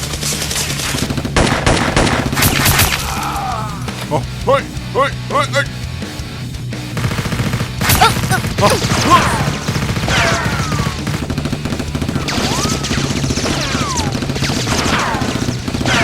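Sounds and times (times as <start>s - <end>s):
rapid gunfire: 0.0s - 3.0s, 6.7s - 16.0s.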